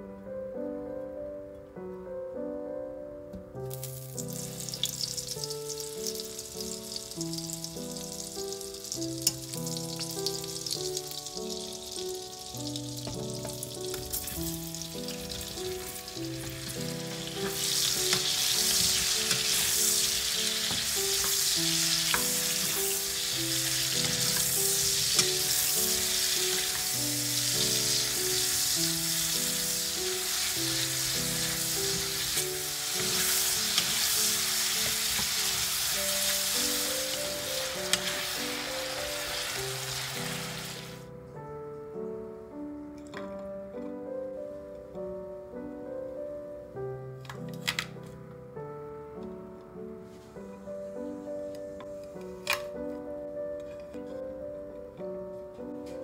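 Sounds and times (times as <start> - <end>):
background music melody: 0.0 - 56.0
butter sizzling in oil: 3.7 - 41.0.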